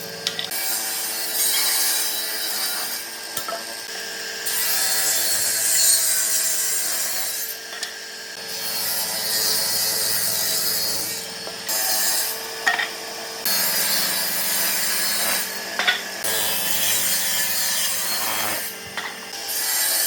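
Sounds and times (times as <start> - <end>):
steady motor hum: 0.0 - 1.2, 7.6 - 19.7
power tool sanding wood: 13.0 - 20.0.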